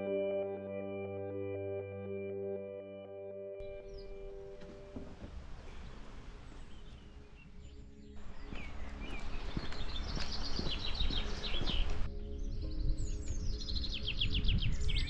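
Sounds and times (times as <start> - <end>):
background music: 0.0 - 15.0
small birds chirping: 3.6 - 15.0.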